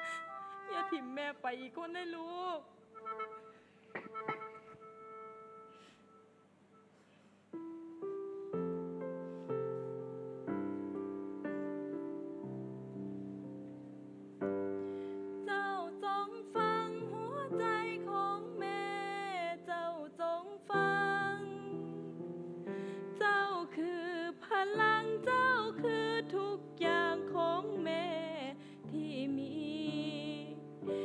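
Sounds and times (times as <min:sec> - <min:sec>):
piano accompaniment: 0:00.0 - 0:01.2, 0:03.0 - 0:06.4, 0:07.5 - 0:31.0
woman singing with vibrato: 0:00.0 - 0:03.2, 0:15.4 - 0:22.1, 0:23.1 - 0:31.0.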